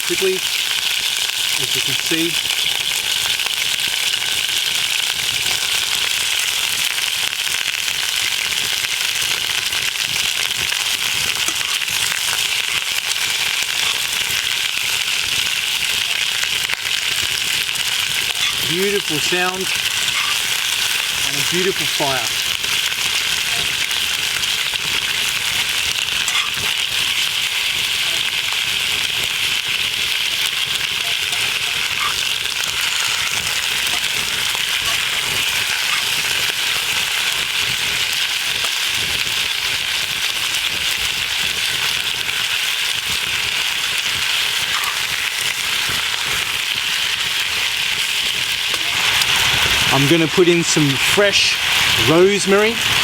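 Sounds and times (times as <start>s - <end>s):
campfire crackling: 0.0s - 53.0s
meat sizzling in a pot: 0.0s - 53.0s.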